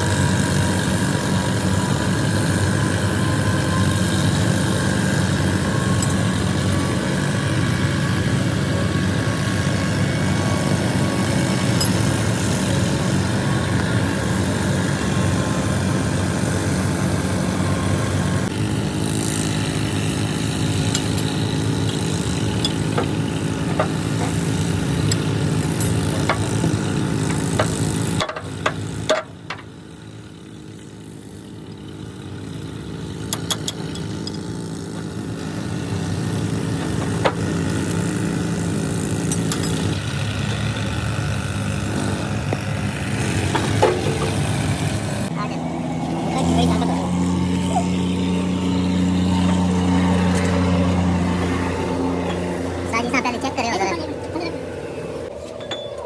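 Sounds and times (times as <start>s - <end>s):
engine idling: 0.0s - 56.0s
sharp metallic clicks and knocks: 20.8s - 24.4s, 25.0s - 29.7s, 33.2s - 34.5s.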